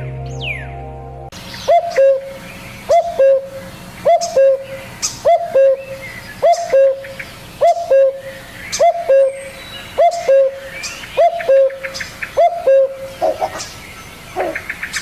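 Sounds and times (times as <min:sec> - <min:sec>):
bird two-note hooting call: 0:01.6 - 0:08.2.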